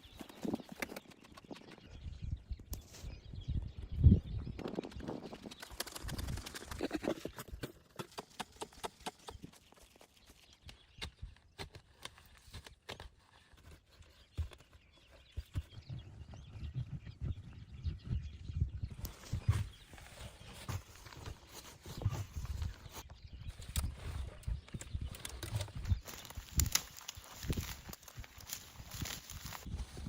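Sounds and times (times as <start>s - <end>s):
sticks cracking underfoot: 26.0s - 29.5s.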